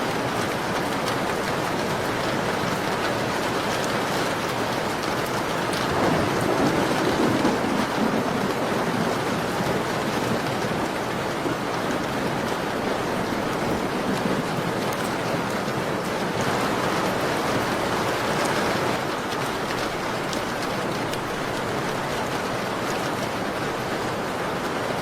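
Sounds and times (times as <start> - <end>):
rain pattering on a window: 0.0 - 25.0.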